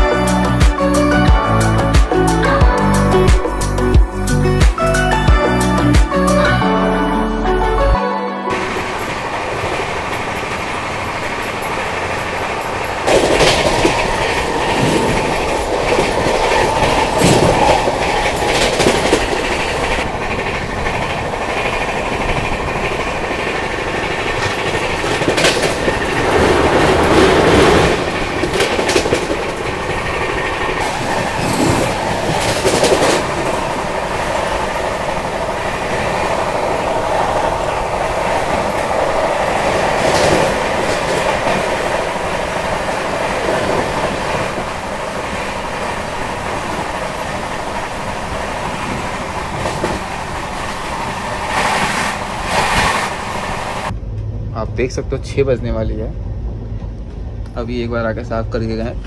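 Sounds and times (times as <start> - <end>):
wheels clacking over rail joints: 8.5 - 53.9
train rushing past: 8.5 - 59.0.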